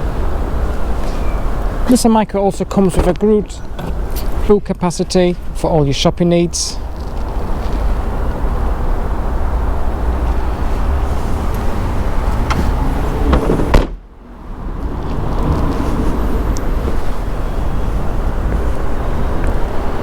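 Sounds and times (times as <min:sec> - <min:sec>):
wind rumble on microphone: 0:06.8 - 0:20.0
loud thump: 0:12.5 - 0:14.0.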